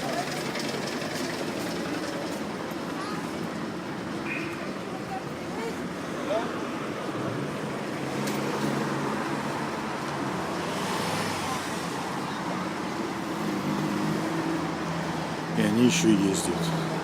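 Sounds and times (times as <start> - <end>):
trolleybus low hum: 0.0 - 10.7
tyre and road noise: 0.0 - 17.0.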